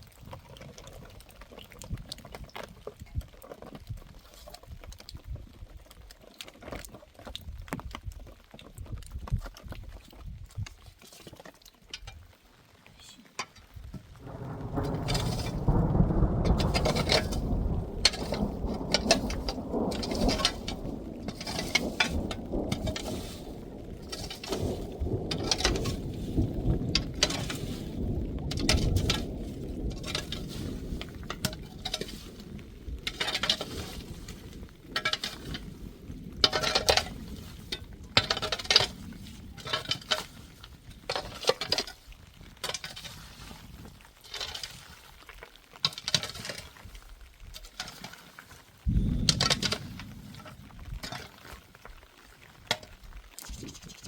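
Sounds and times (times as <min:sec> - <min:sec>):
low roar of wind: 0:00.0 - 0:11.0, 0:13.5 - 0:54.0
hail and rain pelting down: 0:12.4 - 0:54.0.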